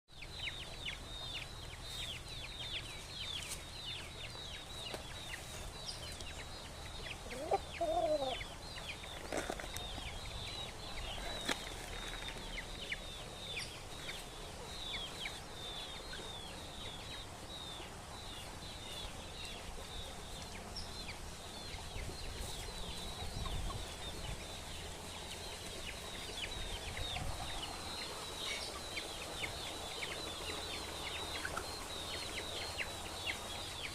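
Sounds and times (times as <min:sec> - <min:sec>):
chickens chirping: 0:00.2 - 0:33.9
chicken low call: 0:07.3 - 0:08.4.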